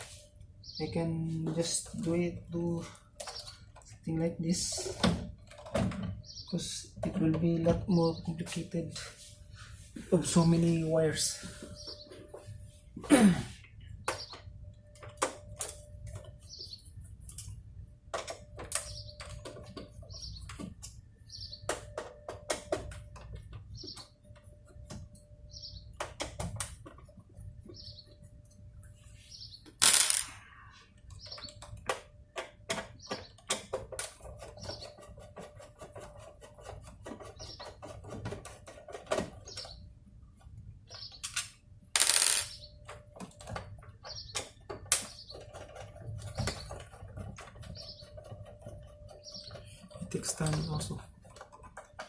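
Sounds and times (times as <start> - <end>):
bird chirping: 0.6 - 2.1, 6.0 - 8.6, 10.3 - 12.6, 18.8 - 22.0, 25.4 - 26.1, 27.6 - 28.4, 39.4 - 39.9, 40.8 - 41.4, 44.0 - 51.9.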